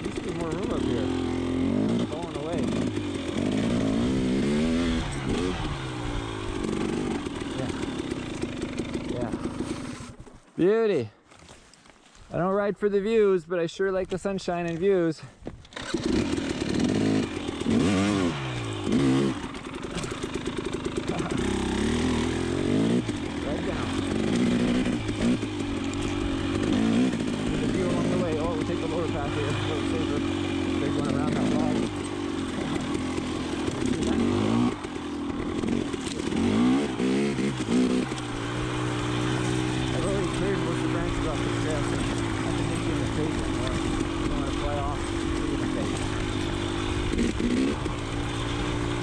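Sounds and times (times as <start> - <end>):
two-stroke engine revving: 0.0 - 10.3, 15.7 - 49.0.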